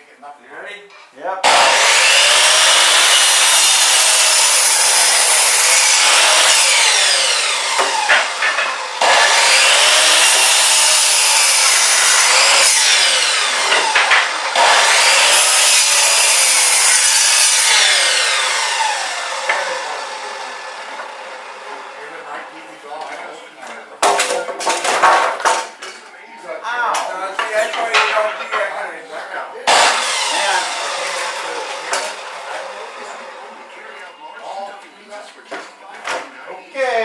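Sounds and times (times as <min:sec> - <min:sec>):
chop saw cutting wood: 0:01.4 - 0:22.2, 0:29.6 - 0:33.9.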